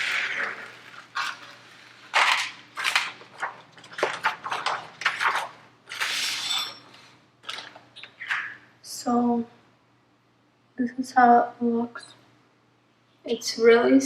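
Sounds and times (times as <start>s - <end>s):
plastic sheet peeling and crinkling: 0.0s - 6.6s.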